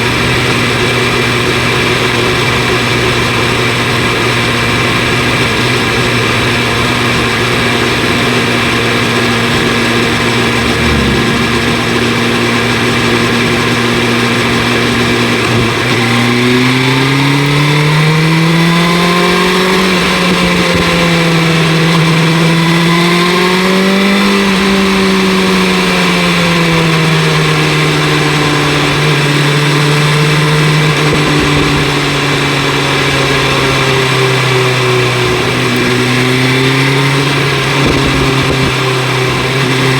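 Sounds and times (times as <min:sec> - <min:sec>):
motorcycle engine revving: 0:00.0 - 0:39.9
rush of wind: 0:08.5 - 0:15.8, 0:37.5 - 0:39.6.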